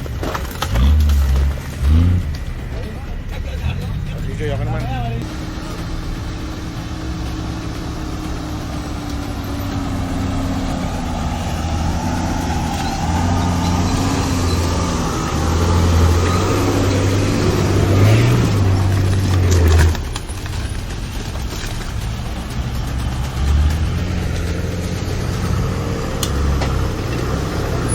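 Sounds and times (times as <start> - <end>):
off-road engine working under load: 0.0 - 27.9.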